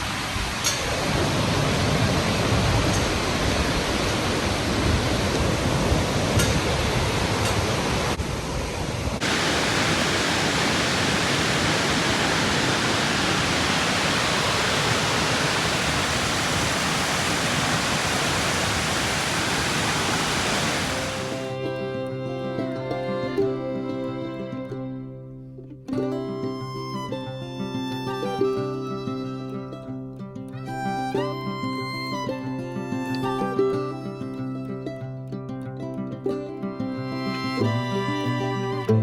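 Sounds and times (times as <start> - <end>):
waterfall roaring: 0.0 - 21.6.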